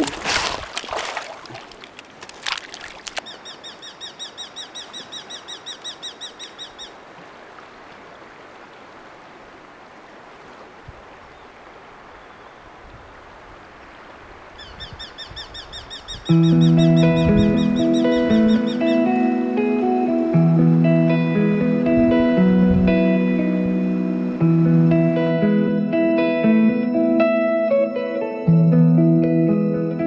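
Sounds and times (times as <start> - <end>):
river water running: 0.0 - 26.4
bird chirping rapidly: 3.2 - 6.9.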